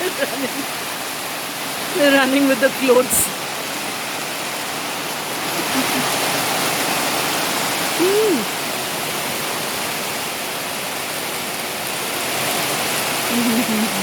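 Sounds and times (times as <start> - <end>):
heavy rain pouring: 0.0 - 14.0
short vocal sound: 8.0 - 8.5.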